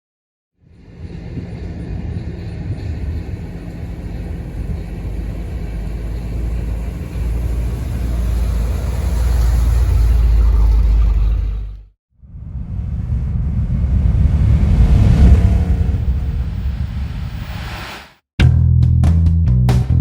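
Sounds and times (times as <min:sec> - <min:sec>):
car engine rumbling: 0:02.4 - 0:17.5.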